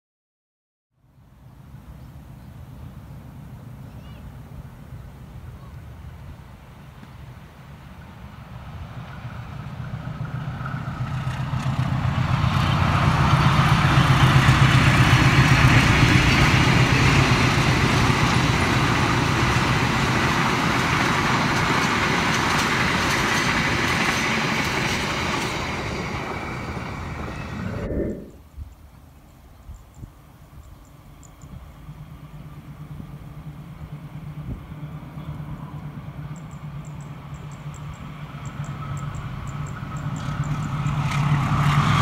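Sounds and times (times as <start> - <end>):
diesel locomotive engine: 1.2 - 42.0
train wheels clattering on rails: 8.7 - 27.5, 30.8 - 42.0.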